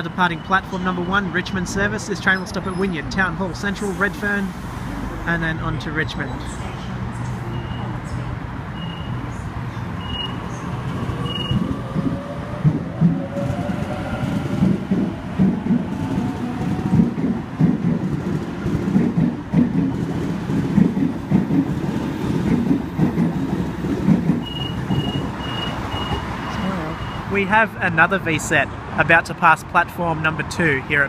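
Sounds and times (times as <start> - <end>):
high beeps: 10.0 - 10.4, 11.2 - 11.7, 24.4 - 27.3
train wheels clacking on rails: 10.0 - 26.4.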